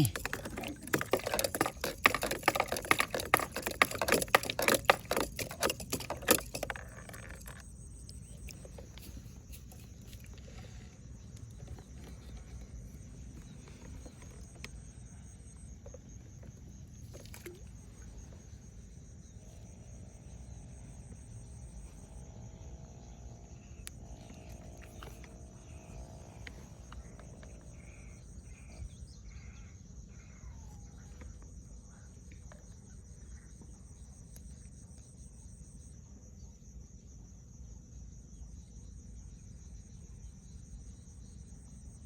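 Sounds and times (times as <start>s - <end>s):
rapid loud clicking and rattling: 0.0s - 7.6s
high insect-like hum: 0.0s - 42.0s.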